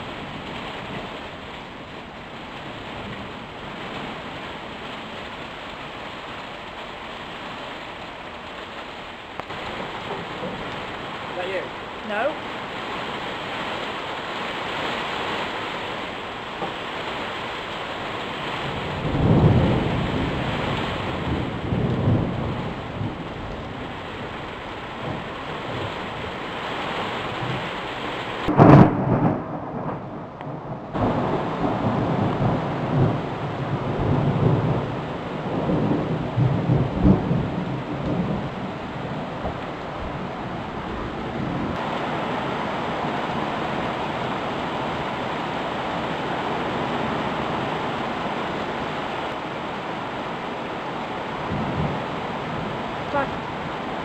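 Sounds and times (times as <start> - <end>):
steady rain: 0.0 - 54.0
thunder rumbling: 9.1 - 54.0
loud thunderclap: 18.6 - 24.4, 28.4 - 40.3, 51.4 - 52.8.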